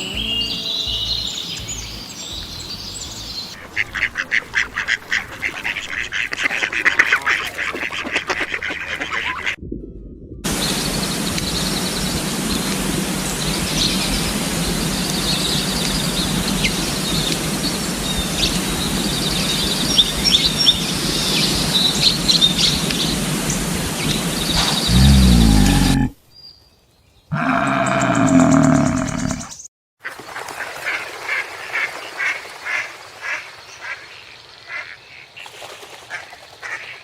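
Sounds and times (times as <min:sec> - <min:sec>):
small birds chirping and trilling: 0:00.0 - 0:06.2, 0:15.1 - 0:29.7
outdoor background noise: 0:00.0 - 0:09.6, 0:10.4 - 0:37.0
low pitched sound: 0:09.5 - 0:11.6.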